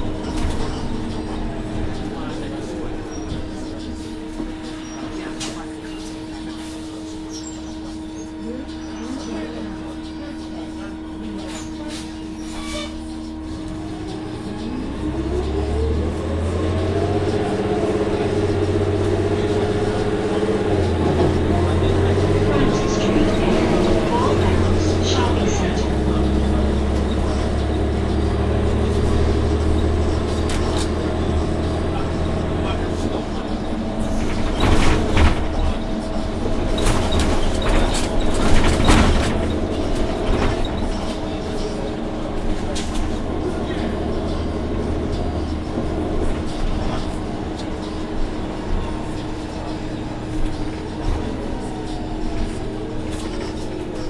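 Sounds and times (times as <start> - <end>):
bus engine accelerating: 0.0 - 54.0
rising transmission whine: 7.3 - 54.0
body rattles and knocks: 33.8 - 41.2.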